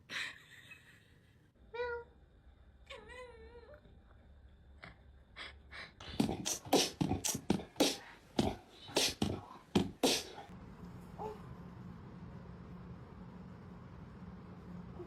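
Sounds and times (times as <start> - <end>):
sharp noisy puffs or scuffs: 6.1 - 10.5.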